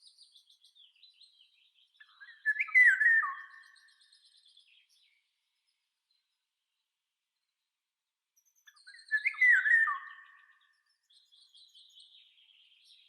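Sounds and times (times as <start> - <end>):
high-pitched bird twittering: 8.9 - 10.4.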